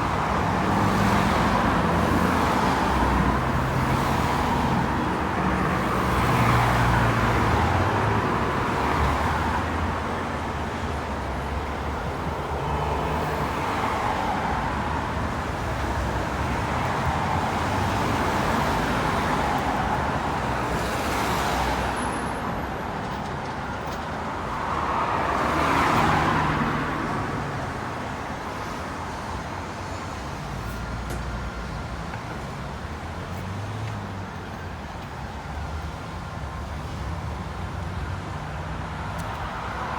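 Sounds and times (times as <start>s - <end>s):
cars passing: 0.0s - 39.9s.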